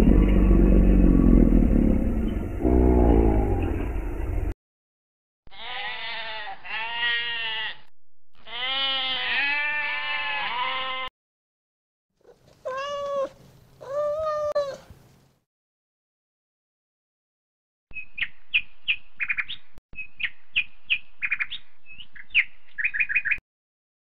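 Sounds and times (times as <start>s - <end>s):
cat meowing: 5.5s - 7.7s, 8.4s - 11.1s, 12.2s - 14.9s
sheep bleating: 5.5s - 11.1s.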